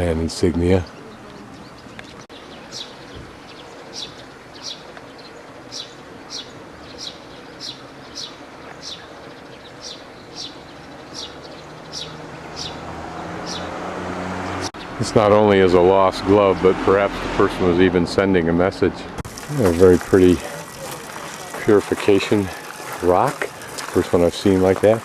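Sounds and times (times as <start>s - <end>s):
small bird chirping: 0.8s - 12.8s
vehicle engine hum: 10.3s - 25.0s.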